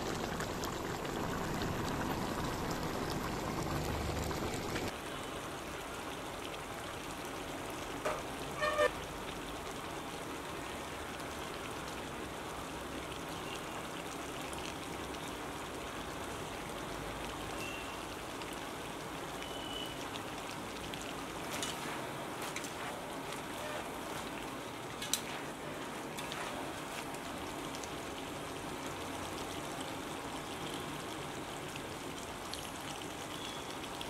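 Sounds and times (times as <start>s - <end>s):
chicken frying in hot oil: 0.0s - 34.0s.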